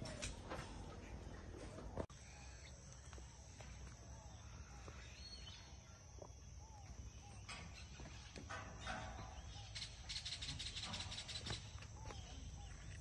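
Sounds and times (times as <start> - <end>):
distant bird chirps: 0.0 - 13.0.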